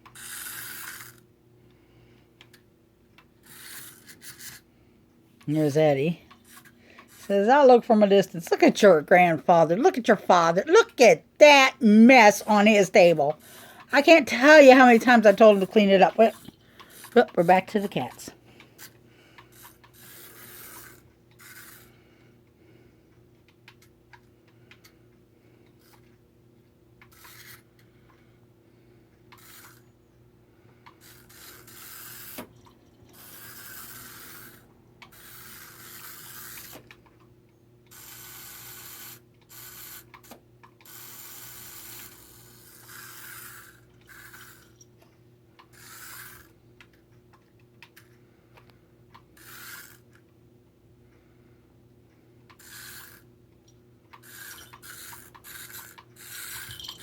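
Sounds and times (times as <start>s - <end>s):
toy car rasping: 0.0s - 1.2s, 3.4s - 4.6s, 6.4s - 7.7s, 12.8s - 22.0s, 27.0s - 27.7s, 29.3s - 29.9s, 31.0s - 36.9s, 37.9s - 44.8s, 45.7s - 46.5s, 49.4s - 50.2s, 52.6s - 53.3s, 54.2s - 57.0s.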